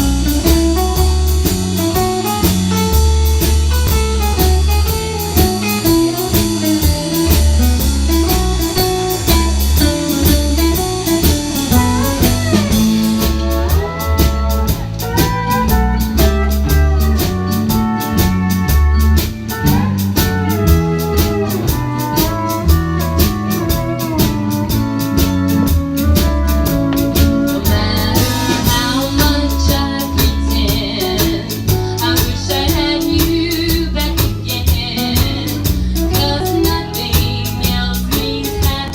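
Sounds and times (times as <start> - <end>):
band playing blues: 0.0 - 38.9
person singing: 27.5 - 38.9.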